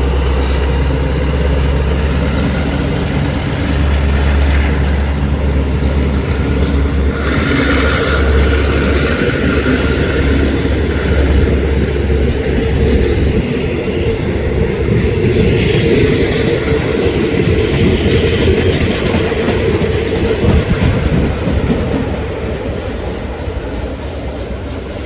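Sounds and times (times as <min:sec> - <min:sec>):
low drone: 0:00.0 - 0:21.4
train wheels clattering on rails: 0:00.0 - 0:25.0.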